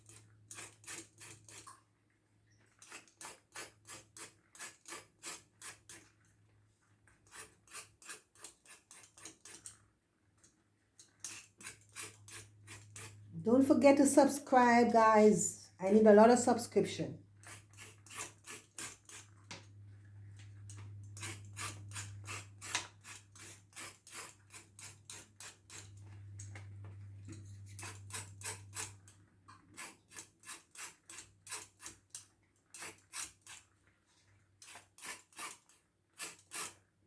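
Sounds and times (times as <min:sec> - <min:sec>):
peeler scraping carrot skin: 0:00.0 - 0:01.8, 0:02.8 - 0:06.1, 0:07.2 - 0:09.8, 0:11.0 - 0:13.8, 0:17.4 - 0:19.4, 0:20.5 - 0:26.5, 0:27.3 - 0:33.7, 0:34.6 - 0:36.8.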